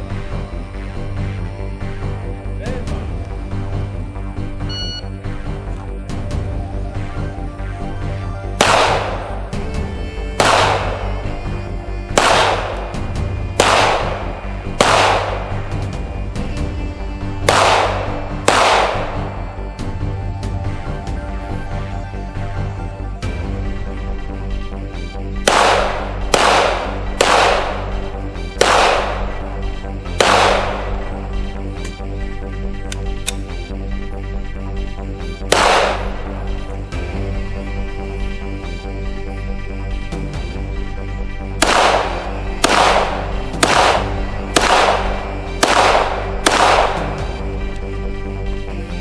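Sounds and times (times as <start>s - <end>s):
background music: 0.0s - 49.0s
gunshots with echo: 8.6s - 9.5s, 10.4s - 11.1s, 12.2s - 13.0s, 13.6s - 15.7s, 17.4s - 19.4s, 25.4s - 31.0s, 35.4s - 36.4s, 41.6s - 47.3s.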